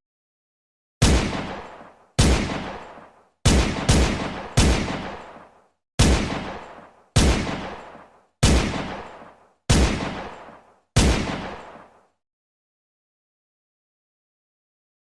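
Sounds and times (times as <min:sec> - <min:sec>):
gunshots with echo: 0:01.0 - 0:12.1.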